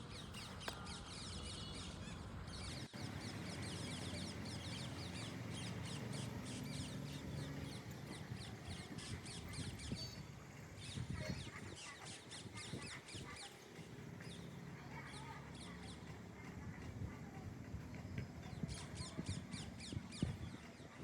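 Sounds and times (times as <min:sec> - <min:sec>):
parakeets chirping: 0:01.2 - 0:20.9.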